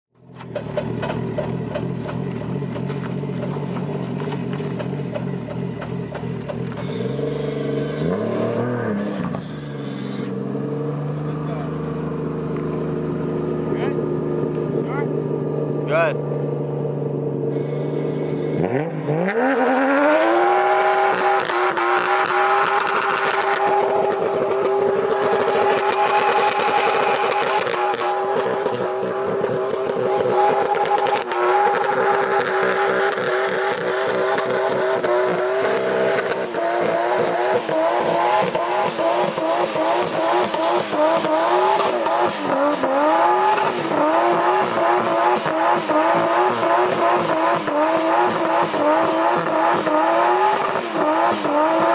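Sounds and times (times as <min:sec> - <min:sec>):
car engine revving hard: 0:00.3 - 0:51.9.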